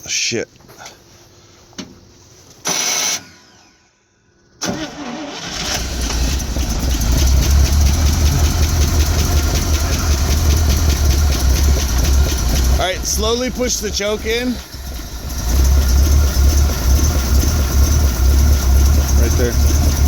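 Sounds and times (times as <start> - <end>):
engine cranking and running: 4.6 - 20.0.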